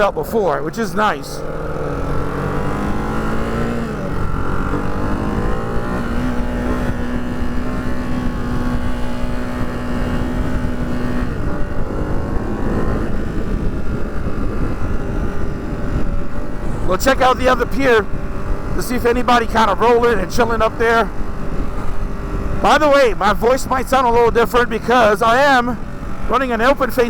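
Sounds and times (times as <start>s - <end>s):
motorcycle engine pulling: 0.0s - 27.0s
wind rumble: 0.0s - 27.0s.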